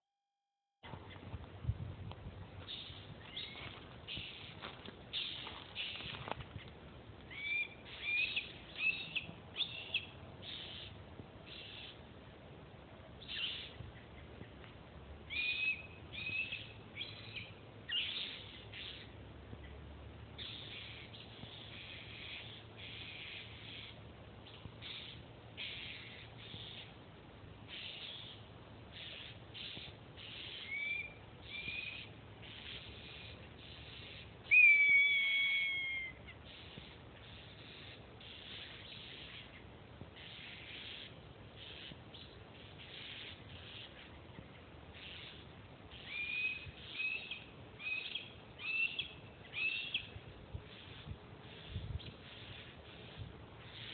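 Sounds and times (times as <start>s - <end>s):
faint scratchy rustling: 0.9s - 7.3s
short bird calls: 7.3s - 12.0s, 13.3s - 14.3s, 20.4s - 27.0s, 27.7s - 53.9s.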